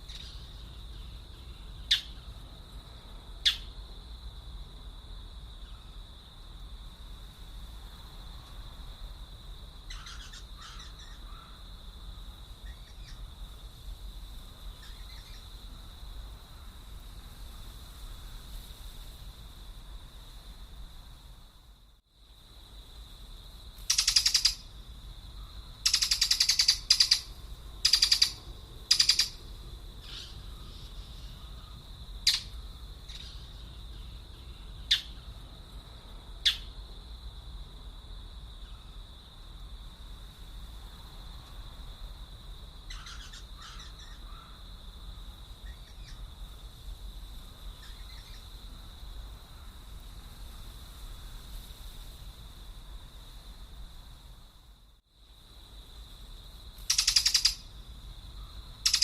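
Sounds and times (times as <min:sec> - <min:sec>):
birds calling harshly: 0:00.0 - 0:02.3, 0:09.9 - 0:11.6, 0:23.9 - 0:24.6, 0:25.8 - 0:29.4, 0:30.0 - 0:34.1, 0:42.9 - 0:44.6, 0:56.9 - 0:57.6
sharp short bird chirps: 0:23.9 - 0:24.6, 0:25.9 - 0:29.4, 0:32.3 - 0:32.5, 0:56.9 - 0:57.6.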